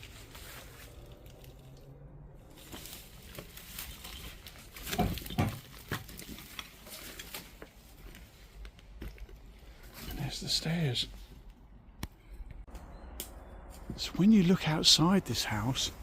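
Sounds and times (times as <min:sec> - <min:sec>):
footsteps crunching over debris: 0:00.0 - 0:11.4.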